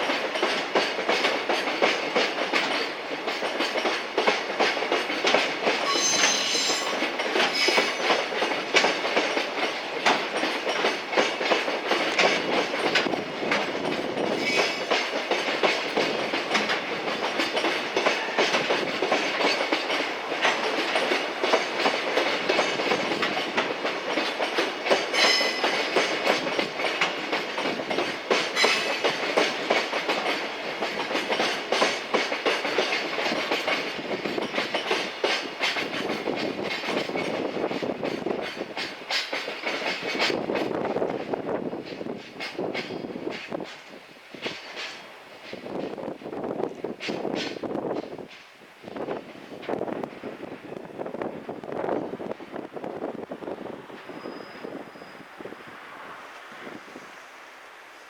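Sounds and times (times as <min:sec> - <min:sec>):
train wheels clattering over rails: 0:00.0 - 0:57.2
high-pitched wheel squeal: 0:05.8 - 0:07.0, 0:54.1 - 0:55.4.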